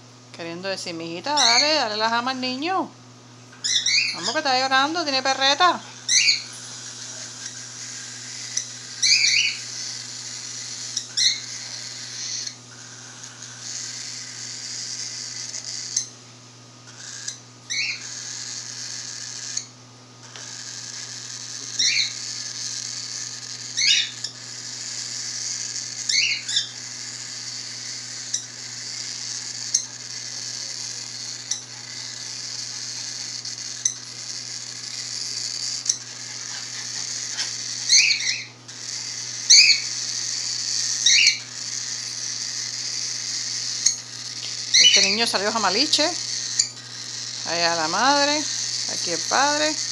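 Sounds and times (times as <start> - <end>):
chick sharp squawks: 1.3 - 1.9, 3.6 - 16.1, 16.8 - 19.6, 29.6 - 49.9
bird chick raspy hissing call: 5.6 - 16.0, 16.9 - 19.6, 20.3 - 49.9.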